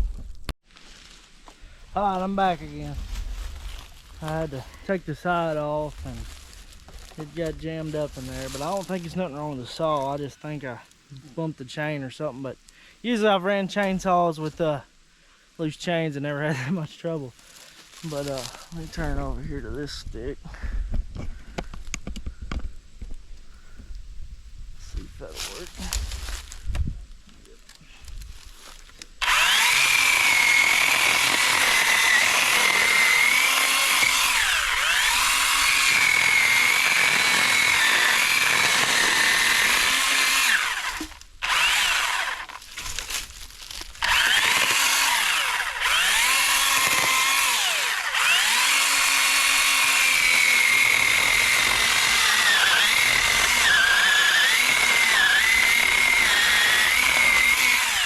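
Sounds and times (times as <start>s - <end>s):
electric chainsaw cutting wood: 29.2s - 58.0s.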